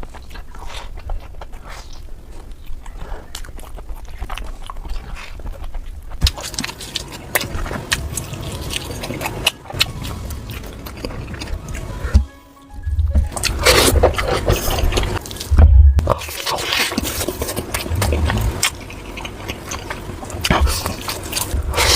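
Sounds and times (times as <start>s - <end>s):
chewing and biting food: 0.0s - 12.3s, 12.9s - 21.9s.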